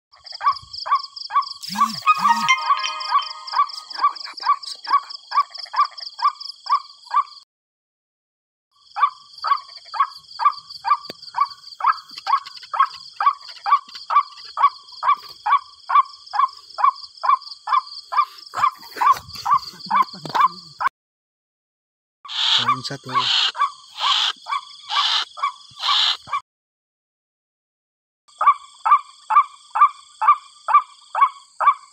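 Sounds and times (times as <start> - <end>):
high insect trill: 1.2 - 6.6
waterhen calling: 1.6 - 4.2, 22.3 - 26.4.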